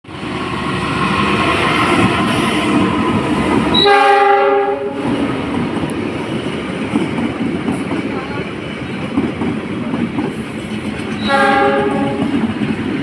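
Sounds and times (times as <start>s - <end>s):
train rail noise: 0.0s - 13.0s
locomotive horn: 3.7s - 5.2s, 11.2s - 12.3s.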